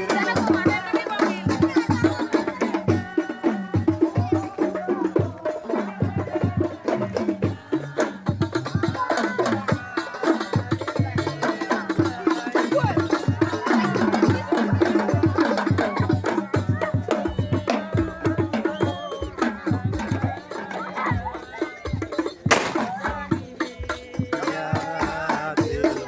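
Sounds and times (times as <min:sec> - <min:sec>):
hand drums fast rhythm: 0:00.0 - 0:26.0
voices singing: 0:00.0 - 0:26.0.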